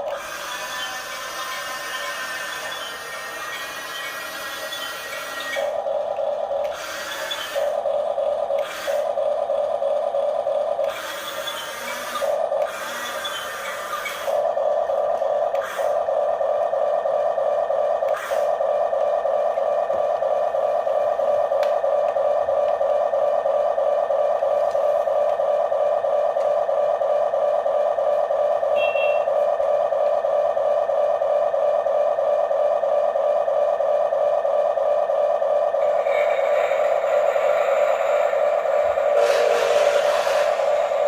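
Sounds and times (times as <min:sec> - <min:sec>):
toy motors whining: 0:00.0 - 0:16.4, 0:17.9 - 0:18.6, 0:35.6 - 0:41.0.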